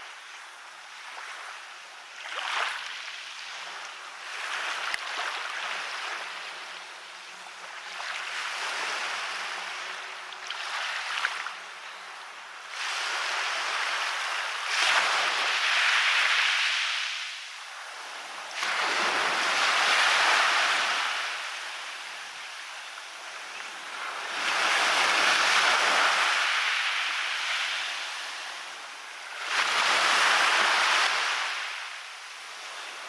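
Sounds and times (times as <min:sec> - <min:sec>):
sea waves breaking on beach: 0:07.6 - 0:11.8, 0:12.6 - 0:33.0.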